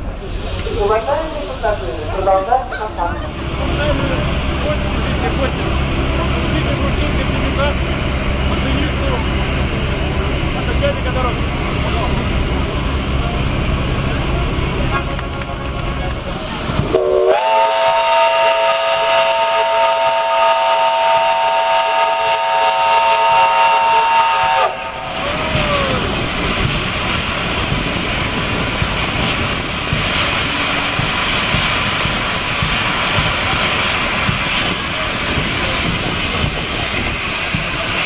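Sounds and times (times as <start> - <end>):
escaping steam hissing: 0.0 - 38.0
steam locomotive whistle: 16.9 - 26.1.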